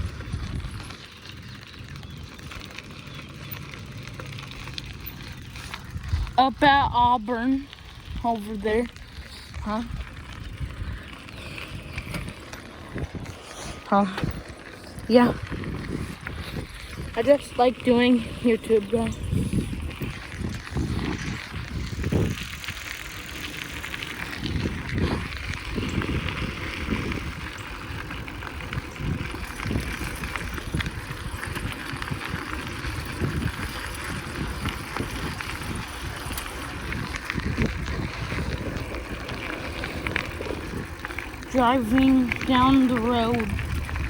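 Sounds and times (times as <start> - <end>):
bicycle riding on a road: 0.0 - 44.0.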